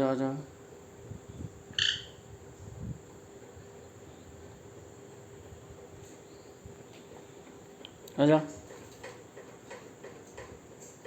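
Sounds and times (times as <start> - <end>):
parrot chirp: 1.8 - 2.2.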